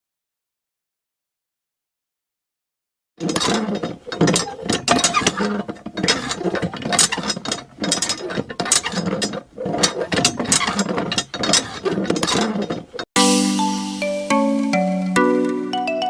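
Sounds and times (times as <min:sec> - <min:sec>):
small mechanism clicking and rattling: 0:03.2 - 0:13.1.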